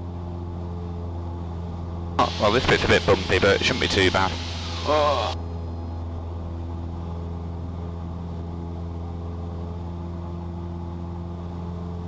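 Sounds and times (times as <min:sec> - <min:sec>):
aircraft engine droning in cabin: 0:00.0 - 0:12.0.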